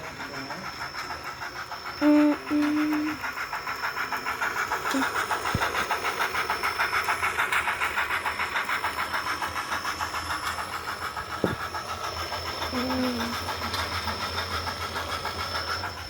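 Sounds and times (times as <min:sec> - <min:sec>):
model train wheels clicking: 0:00.0 - 0:16.0.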